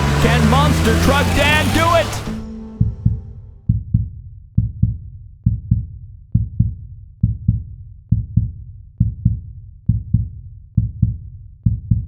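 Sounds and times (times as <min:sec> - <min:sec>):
heartbeat-style double thumps: 0:02.4 - 0:12.0.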